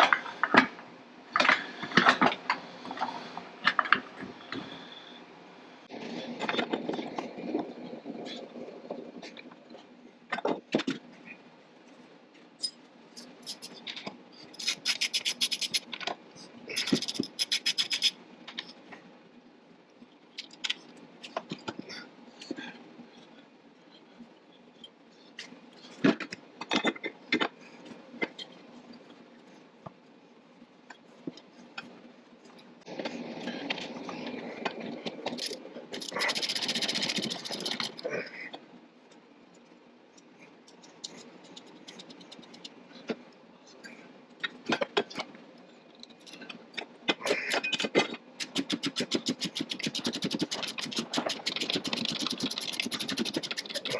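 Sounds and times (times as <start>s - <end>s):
rapid clicking bursts: 14.6s - 16.0s, 16.7s - 18.2s, 35.3s - 38.0s, 40.7s - 42.8s, 48.4s - 53.9s.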